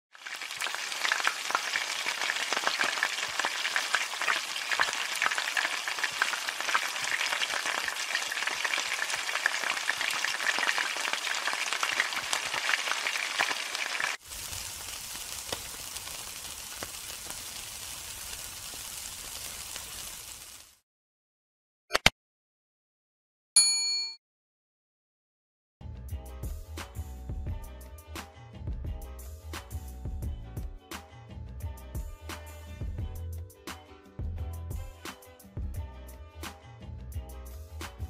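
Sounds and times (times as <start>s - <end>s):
food sizzling in hot oil: 0.1s - 20.8s.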